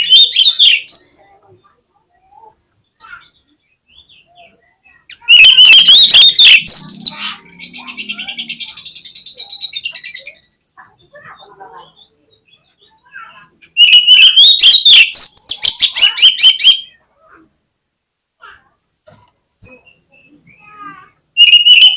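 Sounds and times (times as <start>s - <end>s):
bird singing loudly: 0.0s - 1.3s, 3.0s - 17.0s, 19.8s - 21.9s
bird whistles and buzzy chatter: 0.0s - 1.7s, 2.8s - 17.0s, 19.6s - 21.9s.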